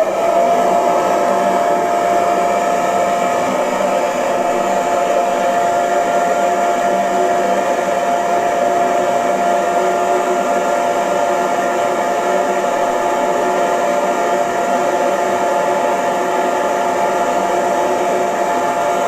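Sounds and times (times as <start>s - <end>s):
hair dryer running: 0.0s - 19.0s.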